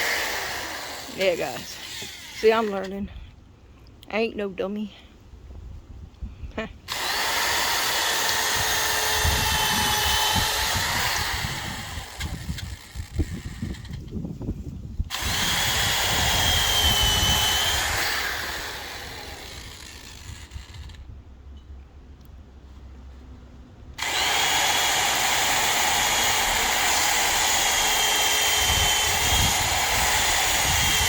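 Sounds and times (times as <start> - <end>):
power drill motor whining: 0.0 - 3.0, 6.9 - 14.0, 15.1 - 21.0, 24.0 - 31.0.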